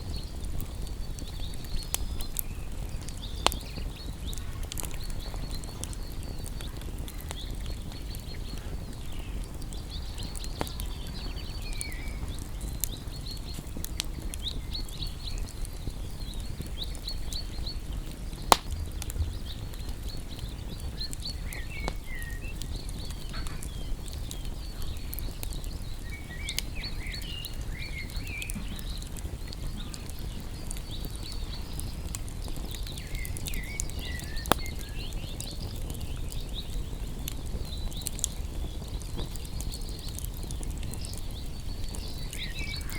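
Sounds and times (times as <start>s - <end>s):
birds chirping: 0.0s - 42.9s
campfire burning: 0.0s - 42.9s
fire crackling and popping: 0.0s - 42.9s.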